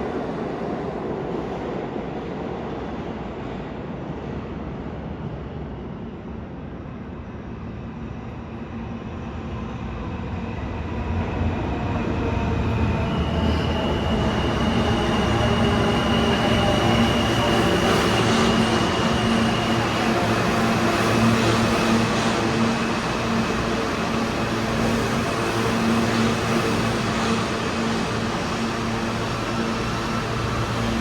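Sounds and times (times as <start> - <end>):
subway train arriving: 0.0 - 31.0.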